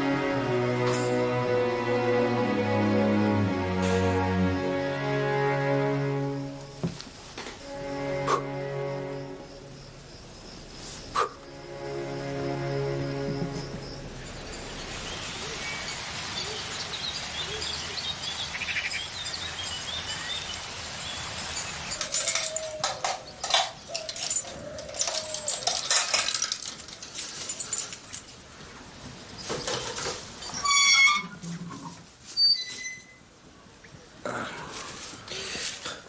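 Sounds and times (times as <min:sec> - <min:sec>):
padlock and chain rattling: 0:22.0 - 0:28.5
gate squeaking: 0:30.4 - 0:31.5, 0:32.4 - 0:33.3.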